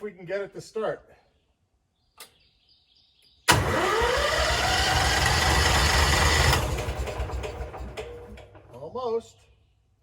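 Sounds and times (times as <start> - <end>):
electric starter cranking engine: 3.5 - 8.7.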